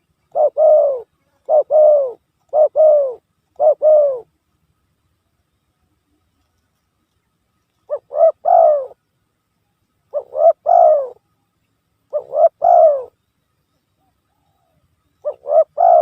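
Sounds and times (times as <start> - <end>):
dove cooing: 0.0 - 4.3, 7.8 - 9.0, 10.1 - 11.3, 12.1 - 13.2, 14.0 - 16.0.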